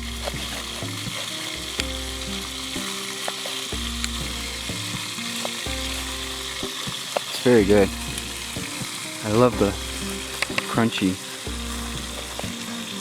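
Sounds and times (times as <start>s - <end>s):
sizzling crackling hiss: 0.0s - 13.0s
small pops and clicks: 10.4s - 10.8s.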